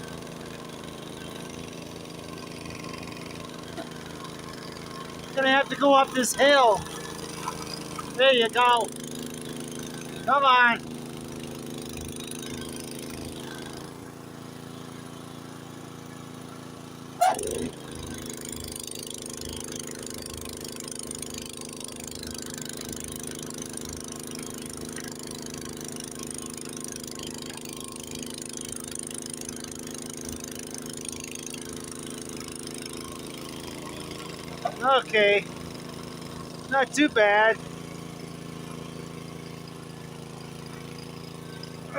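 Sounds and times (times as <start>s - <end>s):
snowblower engine running: 0.0s - 41.9s
loud falling pitch sound: 17.2s - 17.9s.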